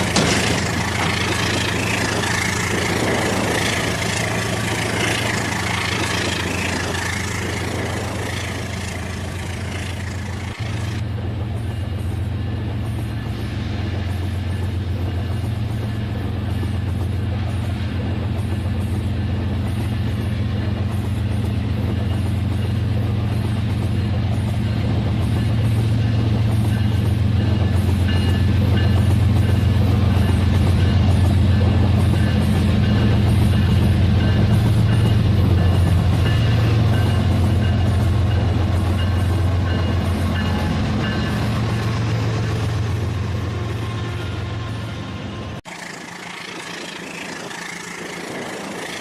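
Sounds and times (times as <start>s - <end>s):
toy train wheels clattering on track: 45.7s - 49.0s.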